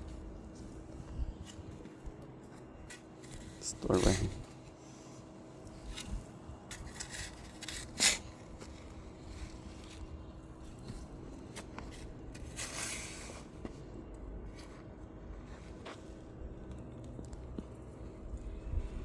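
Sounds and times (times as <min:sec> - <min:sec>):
digging scrapes in soil: 0:00.1 - 0:16.3.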